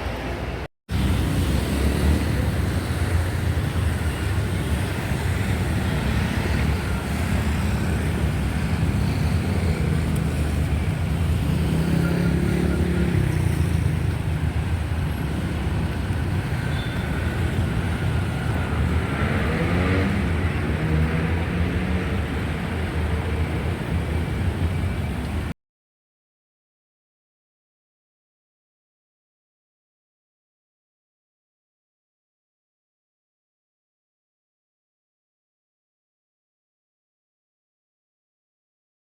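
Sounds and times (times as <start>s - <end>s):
rumble of passing cars: 0.3s - 25.5s
car engine speeding up: 18.6s - 22.7s.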